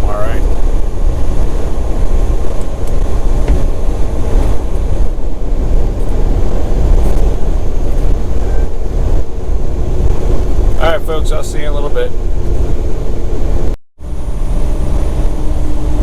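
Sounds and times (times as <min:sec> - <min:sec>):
truck engine and road noise: 0:00.0 - 0:16.0.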